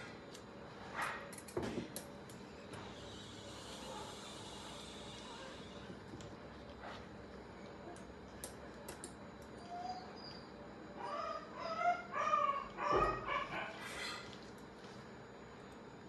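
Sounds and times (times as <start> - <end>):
animal crying high-pitched: 11.0 - 14.1.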